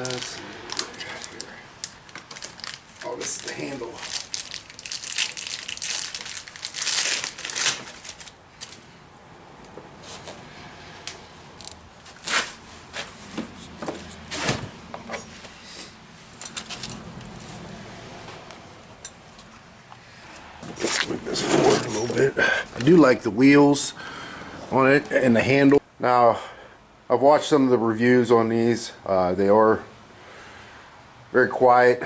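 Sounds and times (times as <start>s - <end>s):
packing material crinkling and tearing: 0.0s - 8.8s.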